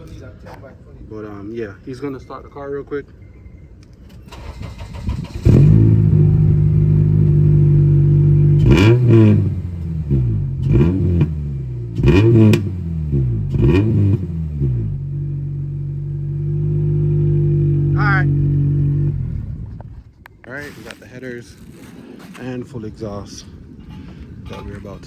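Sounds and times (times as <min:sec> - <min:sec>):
car starter cranking: 0:04.0 - 0:07.4
car engine idling: 0:04.2 - 0:20.2
engine throttle blips: 0:04.2 - 0:20.4.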